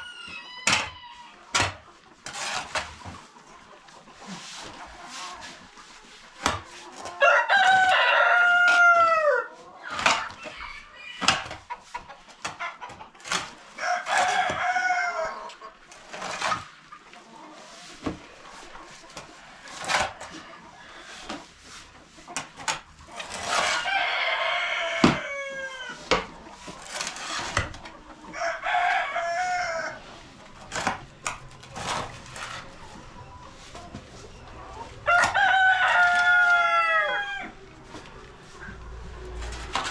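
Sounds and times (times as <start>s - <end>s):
rooster crowing: 7.2s - 9.5s, 23.7s - 26.0s, 28.3s - 30.0s, 35.0s - 37.6s.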